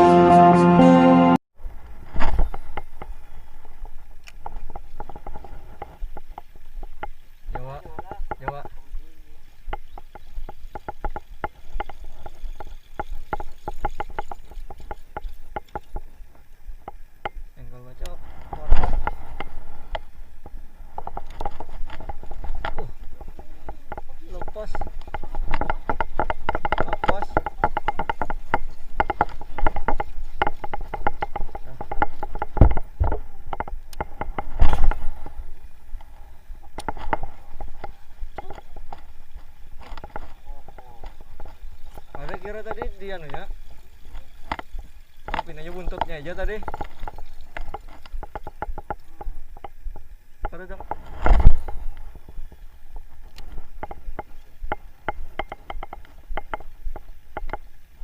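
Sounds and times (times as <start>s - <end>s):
hollow knocks and taps: 2.4s - 17.4s, 18.5s - 35.4s, 36.0s - 57.8s
dull thumps: 18.6s - 35.4s.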